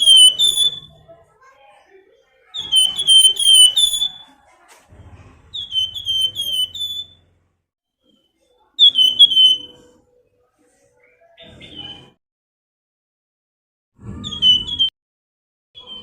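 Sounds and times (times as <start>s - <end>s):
songbird whistling call: 0.0s - 1.0s, 2.6s - 4.3s, 5.6s - 7.2s, 8.8s - 9.9s.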